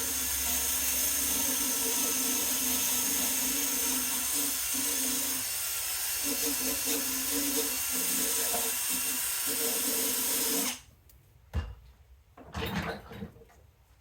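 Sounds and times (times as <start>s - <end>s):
drill spinning wire wheel: 0.0s - 10.8s.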